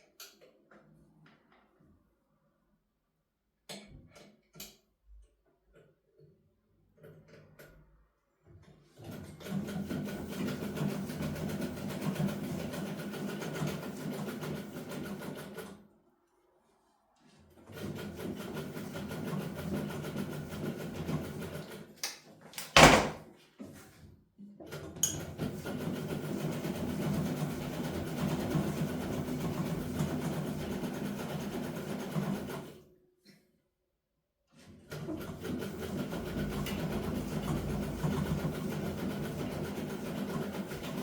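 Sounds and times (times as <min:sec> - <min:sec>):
sewing machine stitching: 0:08.8 - 0:15.8, 0:17.6 - 0:21.9, 0:24.7 - 0:32.8, 0:34.5 - 0:41.0.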